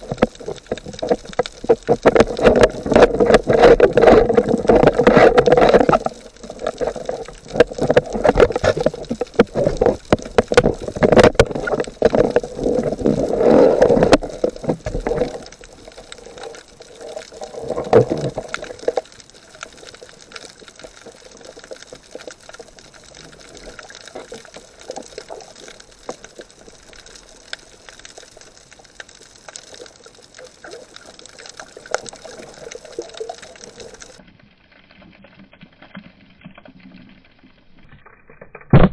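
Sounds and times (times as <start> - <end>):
water splashing and gurgling: 0.0 - 38.9.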